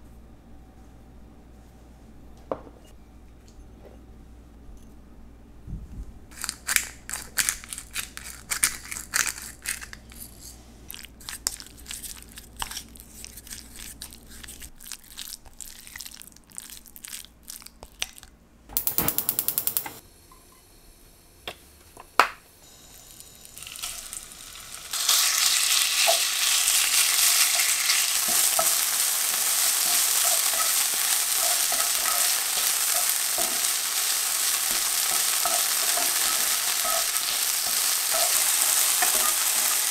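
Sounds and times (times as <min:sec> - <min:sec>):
kitchen knocks and clicks: 0:18.7 - 0:20.0
food sizzling in frying pan: 0:22.6 - 0:39.9.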